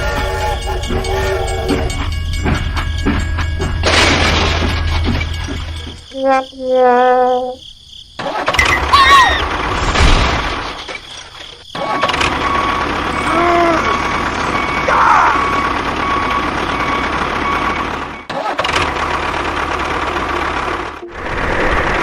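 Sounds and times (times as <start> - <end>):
engine running: 12.0 - 22.0
rising and falling tones: 21.0 - 22.0.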